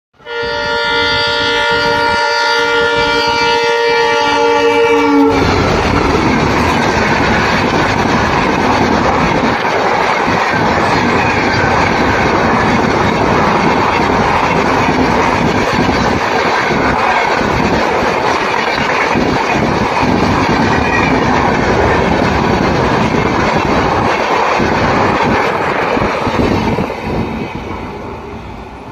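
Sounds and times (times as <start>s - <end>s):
train horn blast: 0.2s - 5.6s.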